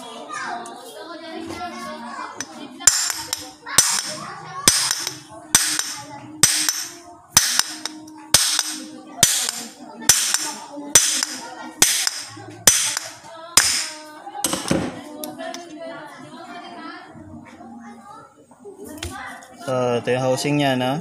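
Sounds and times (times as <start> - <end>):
hammer striking metal: 2.4 - 14.8.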